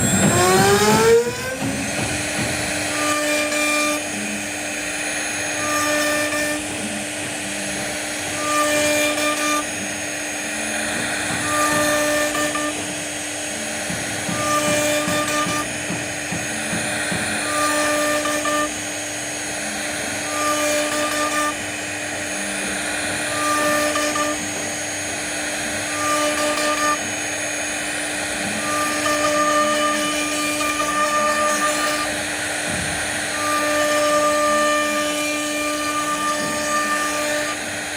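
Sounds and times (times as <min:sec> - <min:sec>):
axis motors high whine: 0:00.0 - 0:37.9
bit cutting into wood: 0:00.0 - 0:37.9
router spindle whining: 0:00.0 - 0:37.9.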